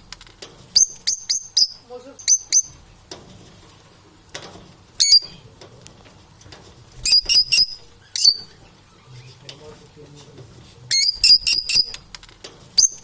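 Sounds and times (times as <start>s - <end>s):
parrots chirping: 0.8s - 2.8s, 5.0s - 5.4s, 7.0s - 9.0s, 10.9s - 12.0s, 12.8s - 13.0s.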